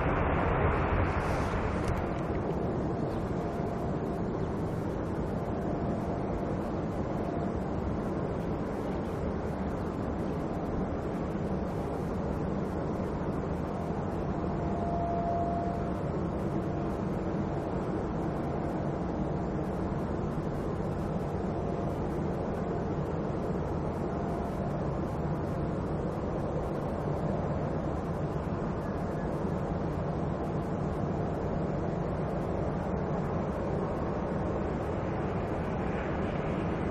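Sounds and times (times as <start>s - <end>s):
jet engines rumbling: 0.0s - 14.8s, 30.3s - 36.9s
faint thin jet whine: 0.0s - 36.9s.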